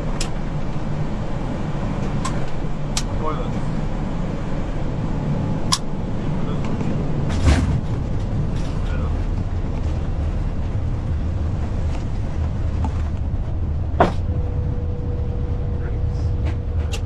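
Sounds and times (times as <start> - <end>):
aircraft low rumble: 0.0 - 17.0
steady even tone: 12.3 - 17.0.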